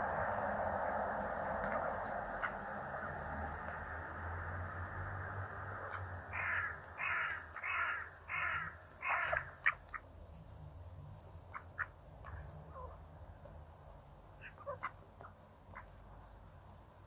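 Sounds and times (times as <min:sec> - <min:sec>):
bird harsh calls: 0:05.9 - 0:10.0.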